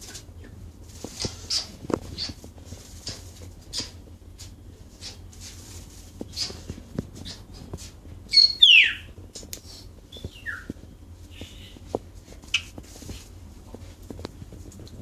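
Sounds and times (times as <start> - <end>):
bulbul calling: 8.3 - 9.1, 10.1 - 11.8.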